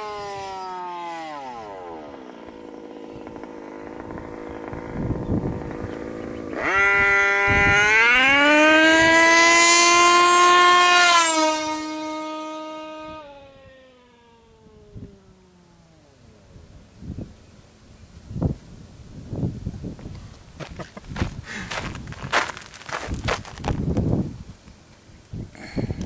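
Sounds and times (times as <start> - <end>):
two-stroke engine revving: 0.0 - 16.5.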